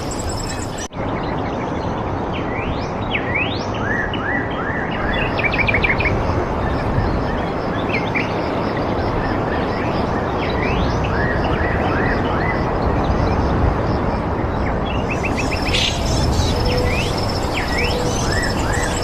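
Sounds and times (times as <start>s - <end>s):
birds calling: 0.0s - 0.9s, 14.9s - 19.0s
steady rushing noise: 11.8s - 19.0s.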